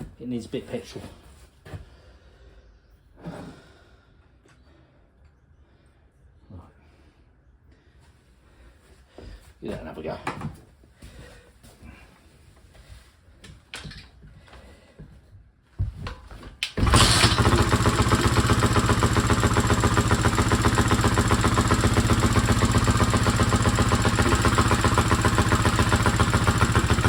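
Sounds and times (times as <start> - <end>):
dirt bike engine kick-started: 16.6 - 27.0.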